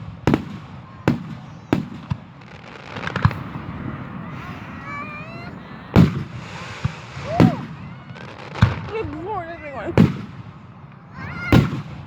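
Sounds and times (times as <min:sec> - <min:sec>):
firework shells booming: 0:00.0 - 0:12.0
low rumble of fireworks: 0:00.0 - 0:12.0.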